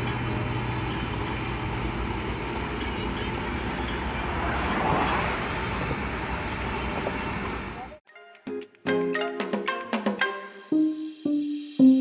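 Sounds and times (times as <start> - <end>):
roadside traffic noise: 0.0 - 8.0
vehicle passing close by: 3.3 - 7.7.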